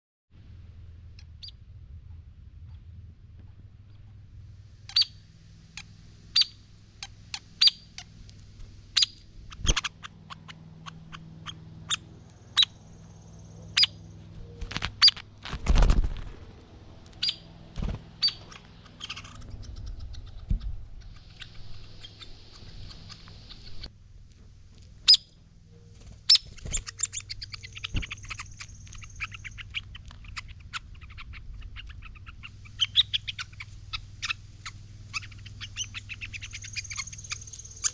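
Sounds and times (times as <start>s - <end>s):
woodpecker chittering: 3.5s - 15.5s, 16.6s - 23.9s, 24.6s - 37.9s
woodpecker calling: 4.8s - 15.5s, 16.6s - 23.9s, 24.9s - 37.9s
dull thump with rustle: 14.6s - 16.6s.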